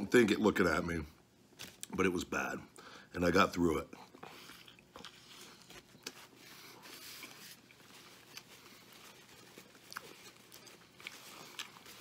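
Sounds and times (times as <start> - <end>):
man chewing food: 4.0 - 12.0.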